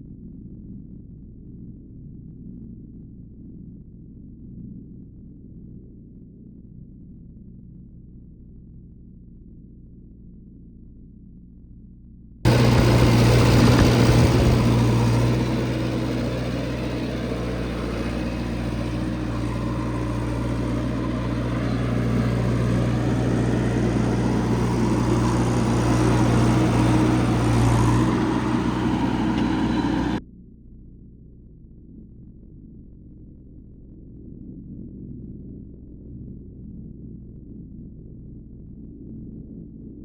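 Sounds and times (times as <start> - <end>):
diesel engine running: 12.5 - 30.2.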